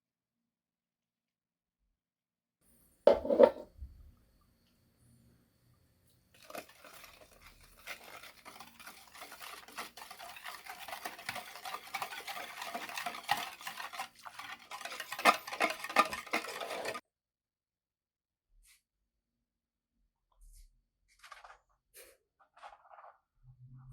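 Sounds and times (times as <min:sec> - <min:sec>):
utensil stirring and scraping container: 0:06.4 - 0:17.0.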